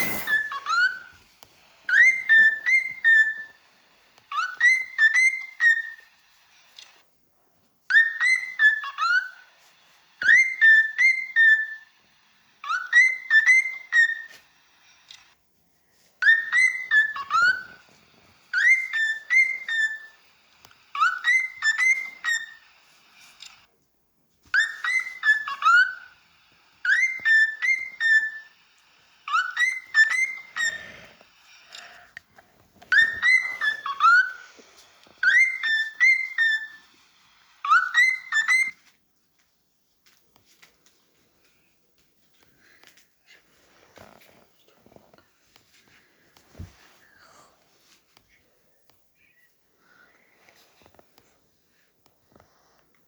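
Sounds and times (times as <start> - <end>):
cockatiel whistling warbled phrase: 4.3 - 6.1, 7.9 - 9.4, 10.2 - 11.9, 16.2 - 17.8, 18.5 - 20.2, 21.0 - 22.6, 24.5 - 26.1, 26.8 - 28.5, 29.3 - 30.8, 32.9 - 34.4, 35.2 - 36.9, 37.6 - 38.8.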